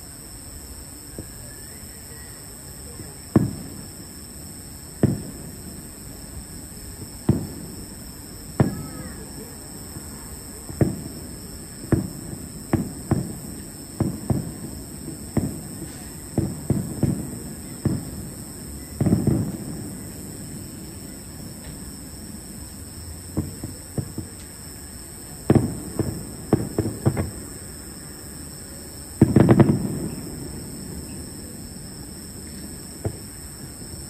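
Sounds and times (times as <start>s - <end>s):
distant fireworks booming: 2.5s - 34.0s.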